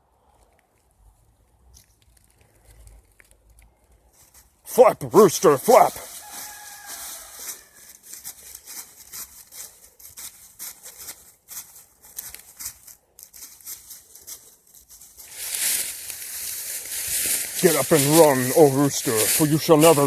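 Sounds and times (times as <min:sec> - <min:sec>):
feathers rustling and scratching: 0:05.4 - 0:20.0.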